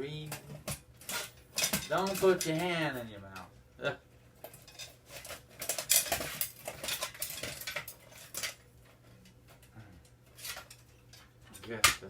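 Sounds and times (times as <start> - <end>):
hand tools clinking on sheet metal: 0.2 - 2.8, 4.5 - 8.6.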